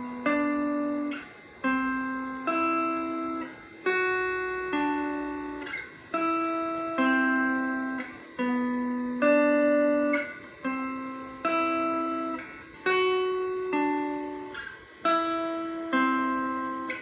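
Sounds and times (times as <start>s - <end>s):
clean electric guitar chords: 0.0s - 17.0s.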